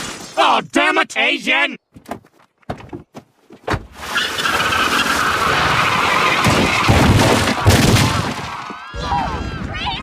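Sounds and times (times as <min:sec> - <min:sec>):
cartoon tyre screech: 0:04.0 - 0:10.0.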